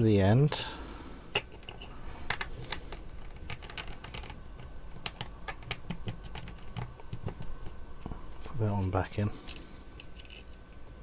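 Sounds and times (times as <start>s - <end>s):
plastic pieces clicking and snapping: 1.3s - 7.5s.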